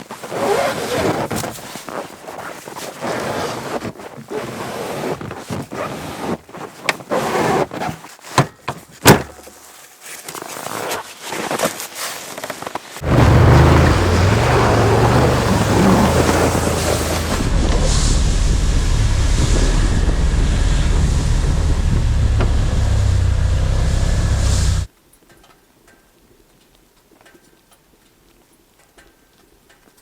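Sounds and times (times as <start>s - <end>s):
rustling handling noise: 5.2s - 13.0s
snowmobile engine running: 13.0s - 24.9s
wind on microphone: 13.9s - 23.3s.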